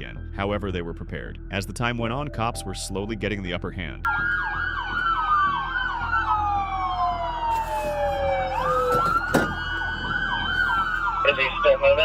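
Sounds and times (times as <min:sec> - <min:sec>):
police sirens wailing: 0:04.1 - 0:12.0
siren yelp: 0:04.1 - 0:12.0.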